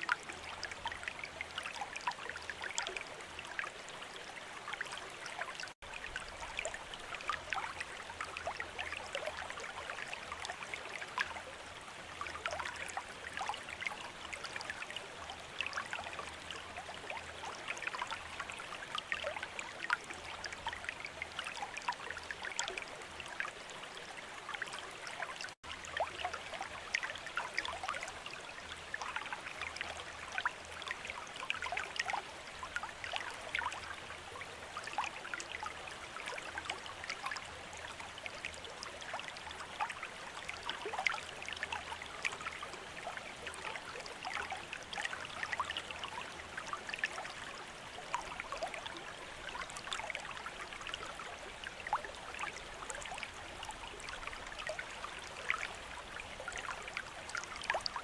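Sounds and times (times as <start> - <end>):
fountain water trickling and splashing: 0.0 - 58.0.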